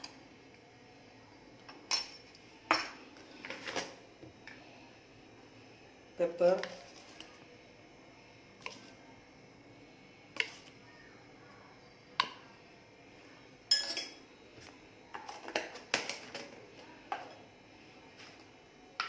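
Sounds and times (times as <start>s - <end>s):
metal spoon clinking on bowl: 13.7s - 14.2s.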